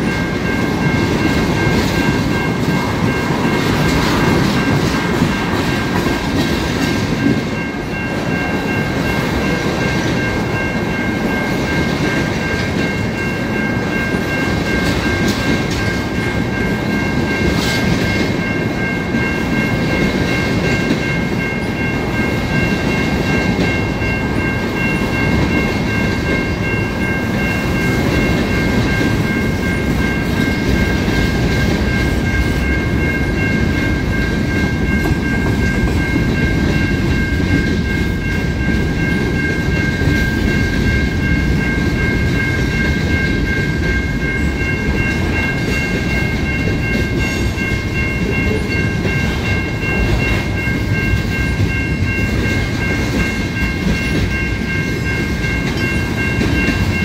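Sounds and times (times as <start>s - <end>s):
high-pitched ringing tone: 0.0s - 57.0s
train wheels rumbling: 0.0s - 57.0s.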